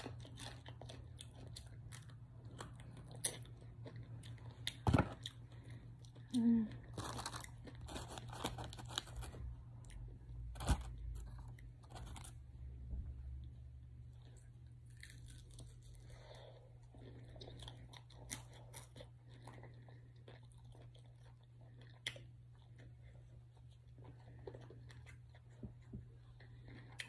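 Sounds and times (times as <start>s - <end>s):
steady low hum: 0.0s - 27.0s
chewing crunchy chicken wings: 16.9s - 27.0s.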